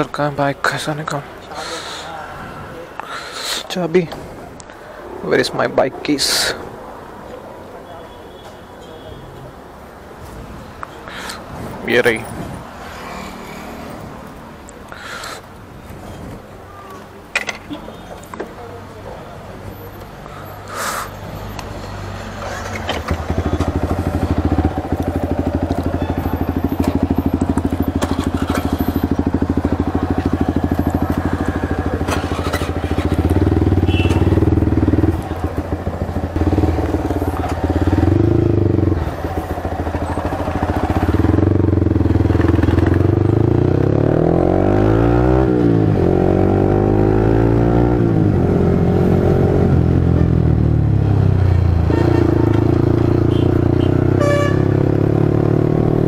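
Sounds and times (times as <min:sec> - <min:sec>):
motorcycle engine idling and revving: 0:10.7 - 0:14.8, 0:21.4 - 0:56.0
motorcycle pulling away through gears: 0:22.4 - 0:56.0.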